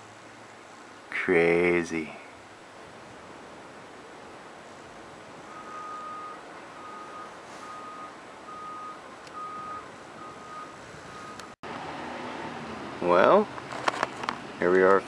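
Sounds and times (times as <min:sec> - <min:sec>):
steady background noise: 0:00.0 - 0:15.0
vehicle reversing alarm beeping: 0:05.4 - 0:11.6.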